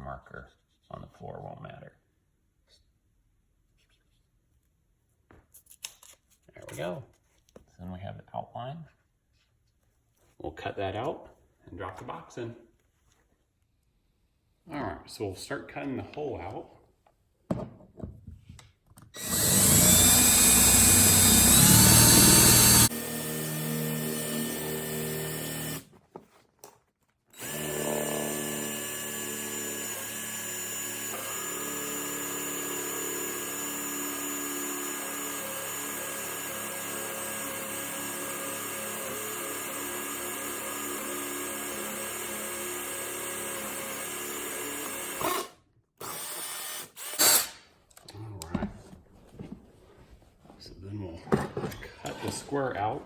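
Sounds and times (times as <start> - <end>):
power tool cutting wood flooring: 19.2 - 25.9, 27.3 - 47.6.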